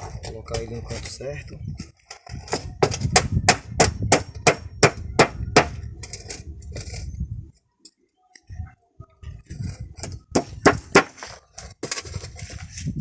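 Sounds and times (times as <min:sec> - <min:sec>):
hammer striking a nail: 0:02.8 - 0:05.8, 0:10.3 - 0:11.2.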